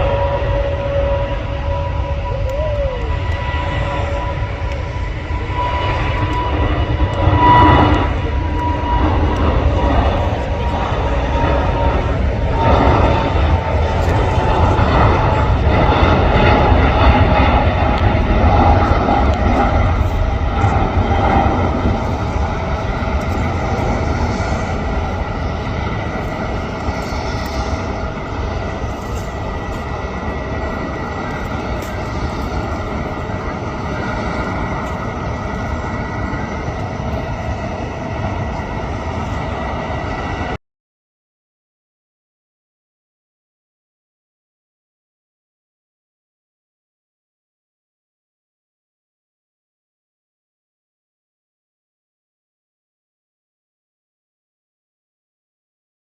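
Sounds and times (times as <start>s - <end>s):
jet engines rumbling and whining: 0.0s - 40.6s.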